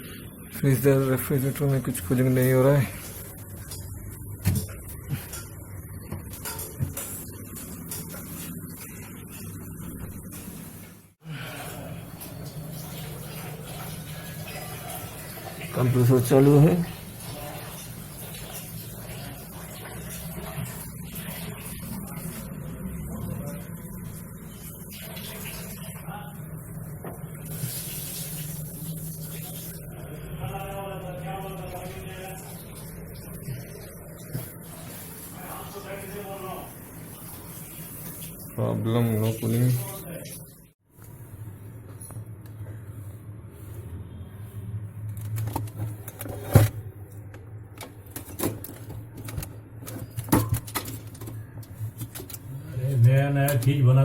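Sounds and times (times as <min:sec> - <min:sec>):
refrigerator compressor humming: 0:41.0 - 0:54.0.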